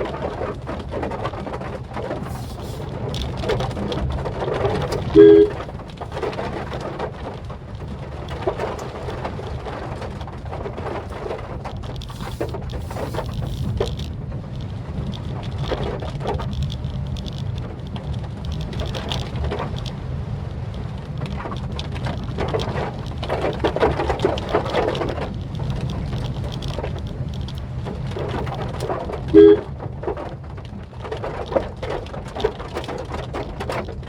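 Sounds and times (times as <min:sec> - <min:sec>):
rain on a car: 0:00.0 - 0:34.0
road and engine rumble: 0:00.0 - 0:34.0.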